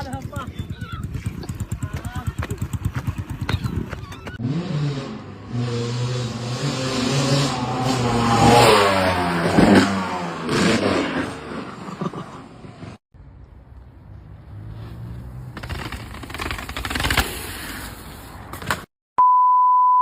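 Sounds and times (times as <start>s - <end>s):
engine running and revving: 1.2s - 12.2s.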